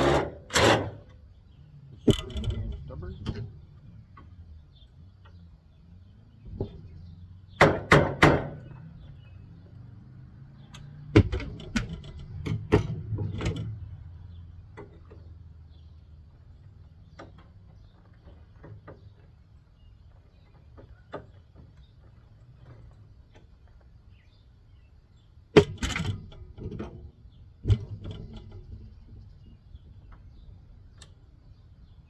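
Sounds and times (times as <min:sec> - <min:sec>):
metal knocks and clanks: 0:02.0 - 0:03.6, 0:11.0 - 0:13.9.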